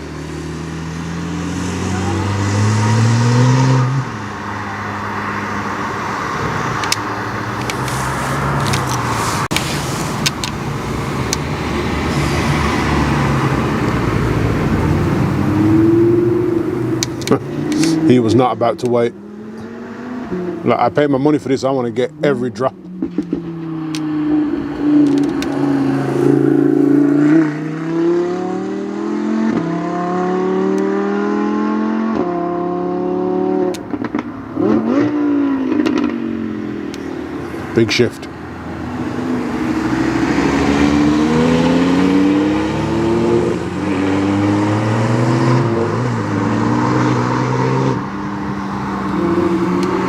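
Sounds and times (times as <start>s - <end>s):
car engine running hard: 0.0s - 50.0s
exhaust cracks: 6.0s - 15.6s, 16.4s - 19.7s.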